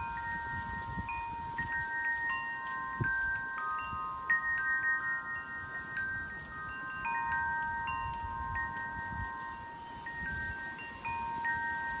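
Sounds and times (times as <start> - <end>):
low wind rumble: 0.0 - 12.0
metal wind chimes ringing: 0.0 - 12.0.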